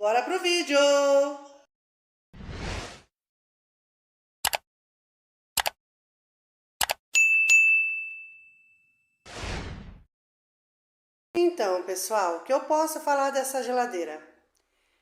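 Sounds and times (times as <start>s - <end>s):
whoosh: 2.4s - 3.1s, 9.3s - 10.1s
bell-like ding: 7.2s - 9.2s.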